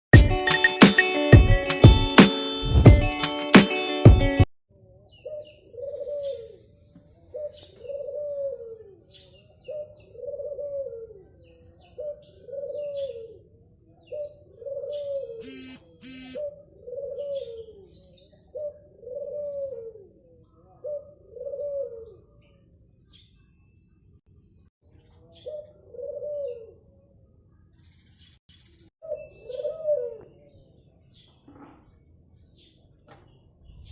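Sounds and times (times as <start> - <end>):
dove cooing: 5.2 - 6.6, 7.3 - 9.0, 9.6 - 11.3, 11.9 - 22.4, 25.4 - 26.8, 29.1 - 30.5
short high chirps: 15.4 - 16.4.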